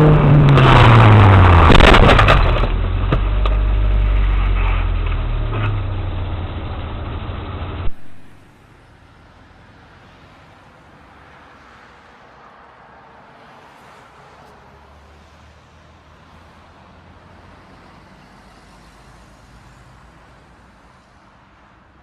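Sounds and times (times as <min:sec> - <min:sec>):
low engine rumble: 0:00.0 - 0:09.1
car engine: 0:00.0 - 0:10.5
car crash with clattering impacts: 0:00.2 - 0:08.5.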